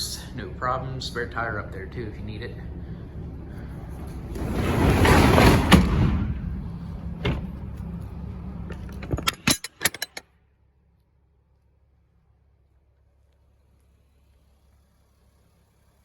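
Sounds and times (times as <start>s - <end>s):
steady low hum: 0.0s - 10.2s
rushing rattle: 2.9s - 10.2s.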